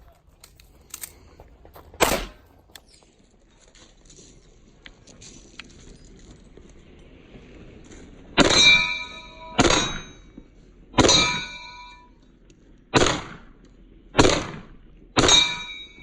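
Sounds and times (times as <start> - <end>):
gunshot: 2.0 - 2.4, 8.4 - 8.8, 9.6 - 10.2, 12.9 - 13.5, 14.2 - 15.7
steel target ringing: 8.4 - 10.4, 11.0 - 12.2, 15.2 - 16.0.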